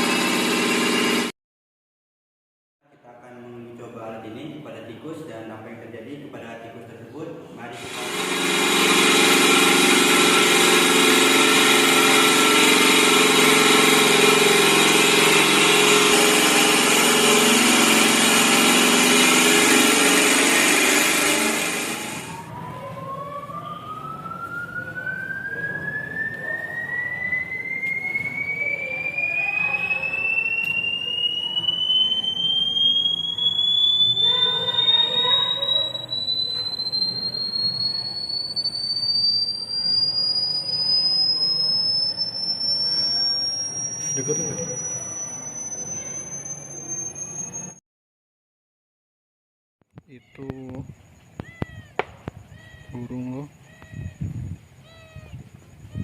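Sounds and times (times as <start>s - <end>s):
rising high tone: 0.0s - 1.3s, 7.7s - 47.8s
harsh dense noise: 24.1s - 47.6s.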